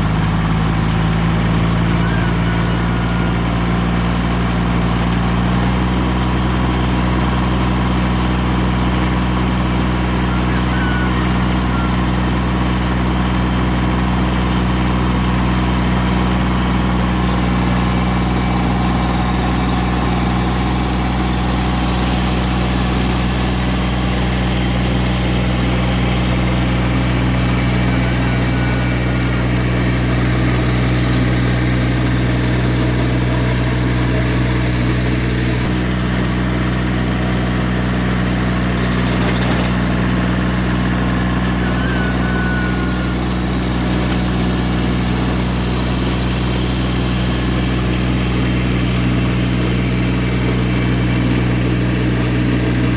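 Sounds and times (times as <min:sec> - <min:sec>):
tractor diesel engine running: 0:00.0 - 0:52.9
rotary tiller through soil: 0:37.4 - 0:49.1.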